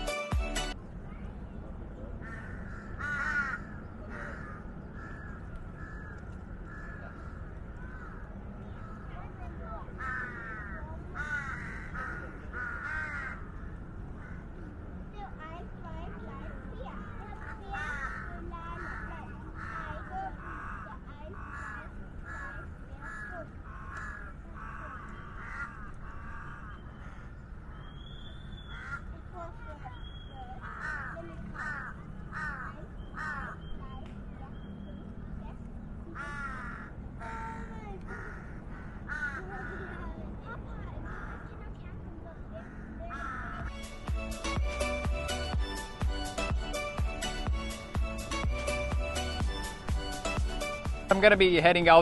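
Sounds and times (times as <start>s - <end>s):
background music: 0.0s - 0.8s, 43.7s - 52.0s
outdoor background noise: 0.0s - 52.0s
bird cawing: 2.2s - 14.6s, 16.8s - 33.8s, 36.1s - 40.2s, 41.0s - 51.3s.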